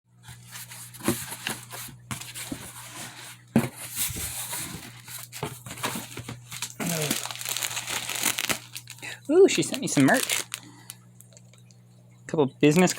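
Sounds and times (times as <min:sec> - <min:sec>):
packaging rustling and tearing: 0:00.5 - 0:11.0.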